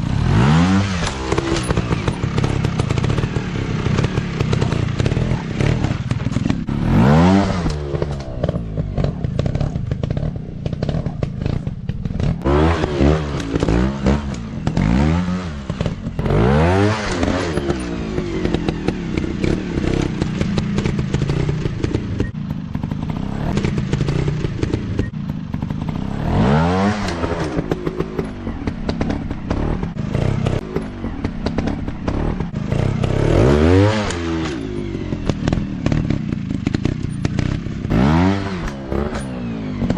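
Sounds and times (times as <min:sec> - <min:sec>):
dirt bike engines revving: 0:00.0 - 0:39.9
rattling clatter: 0:01.0 - 0:06.8.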